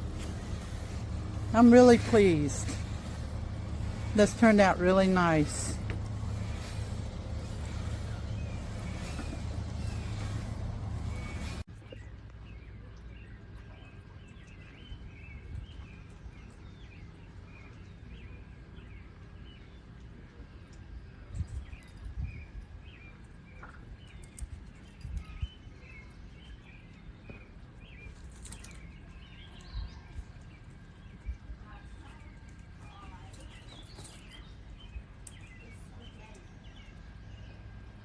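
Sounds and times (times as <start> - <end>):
low outdoor rumble: 0.0 - 14.4, 28.9 - 38.0
small birds chirping: 0.0 - 38.0.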